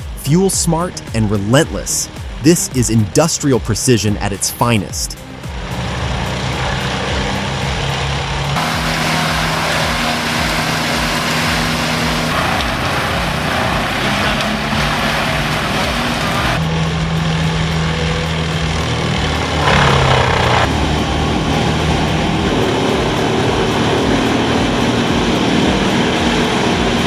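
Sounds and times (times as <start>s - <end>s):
large diesel engine running: 0.0s - 27.0s.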